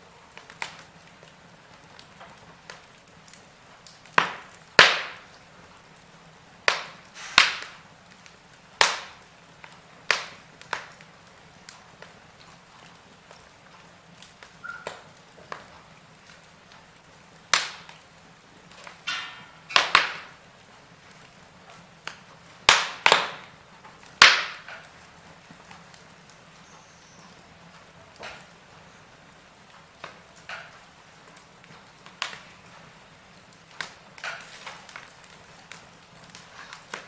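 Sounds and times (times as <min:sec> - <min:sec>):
faint hiss: 0:00.0 - 0:22.7
wood fire crackling: 0:00.0 - 0:37.0.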